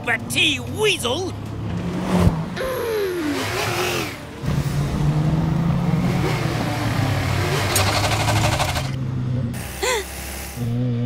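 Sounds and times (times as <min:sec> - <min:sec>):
rapid rattling clatter: 0:07.7 - 0:09.0.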